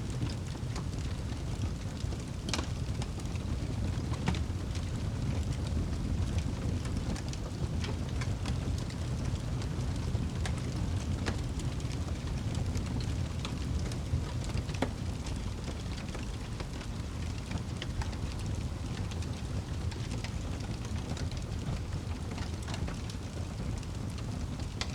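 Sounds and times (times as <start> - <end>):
fire crackling and popping: 0.0 - 24.9
fire rumbling in fireplace: 0.0 - 24.9.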